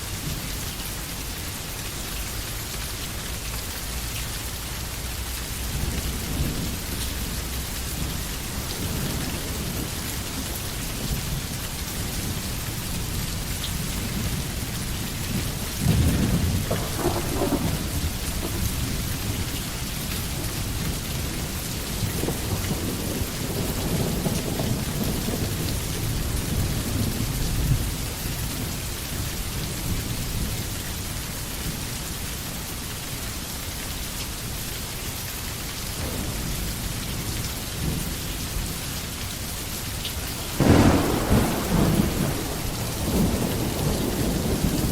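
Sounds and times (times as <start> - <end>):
steady rain falling: 0.0 - 44.9
rolling thunder: 5.6 - 28.8, 36.0 - 39.0, 40.3 - 44.9.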